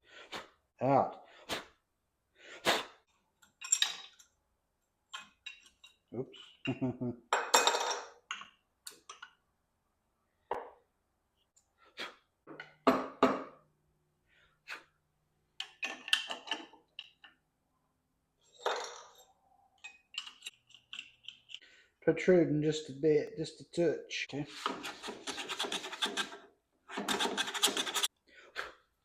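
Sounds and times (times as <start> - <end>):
hard parts clinking and knocking: 3.4 - 4.4, 5.1 - 9.4, 15.6 - 17.4, 18.5 - 21.6.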